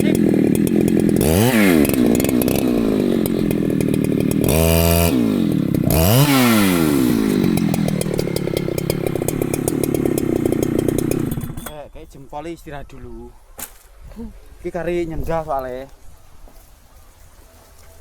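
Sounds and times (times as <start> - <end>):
chainsaw engine revving: 0.0 - 11.8.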